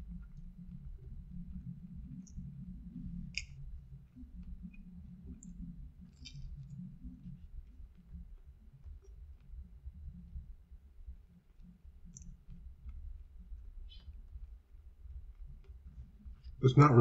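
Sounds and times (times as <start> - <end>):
mouth clicks and smacks: 4.4 - 6.8.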